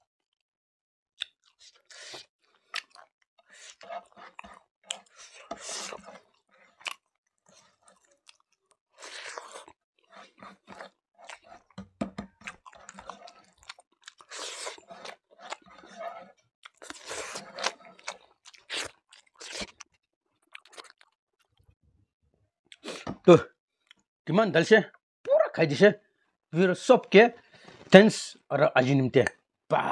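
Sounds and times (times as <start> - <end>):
man chewing rice: 1.2 - 21.5.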